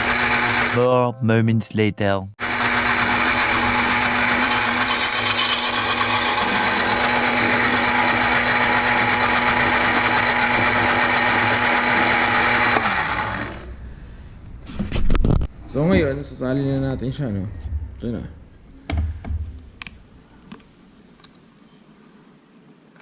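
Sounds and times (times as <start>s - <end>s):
electric blender grinding: 0.0s - 0.8s, 2.4s - 13.7s.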